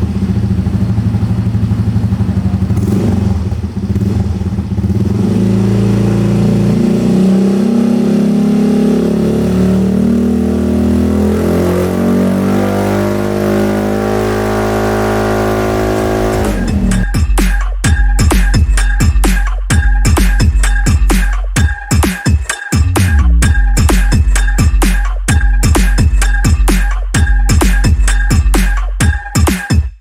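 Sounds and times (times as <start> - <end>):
scooter engine revving: 0.0 - 17.2.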